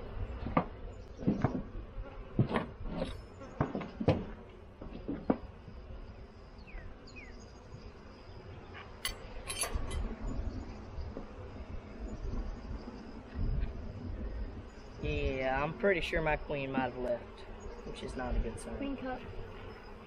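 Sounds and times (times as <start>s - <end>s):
honey bees buzzing: 0.0s - 20.0s
metal hive tool clinking: 9.0s - 10.1s.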